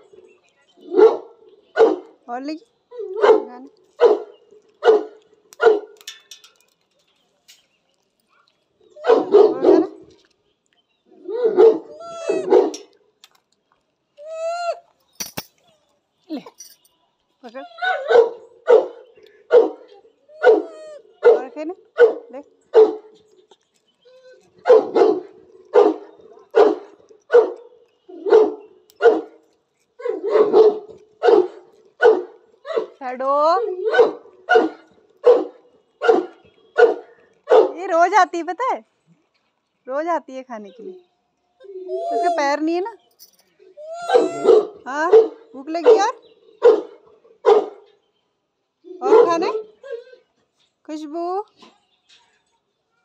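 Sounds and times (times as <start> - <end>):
dog barking: 0.9 - 2.1, 3.2 - 6.0, 9.0 - 10.0, 11.4 - 12.8, 18.0 - 23.2, 24.6 - 29.3, 30.0 - 33.0, 33.8 - 37.8, 44.1 - 47.8, 49.0 - 49.6
dog whining: 14.2 - 14.9, 24.0 - 24.6, 41.6 - 42.9, 43.7 - 44.6, 48.9 - 50.3.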